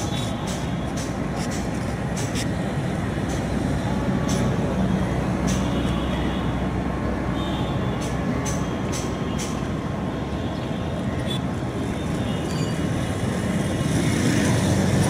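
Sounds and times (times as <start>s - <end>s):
train rumbling: 0.0s - 5.8s.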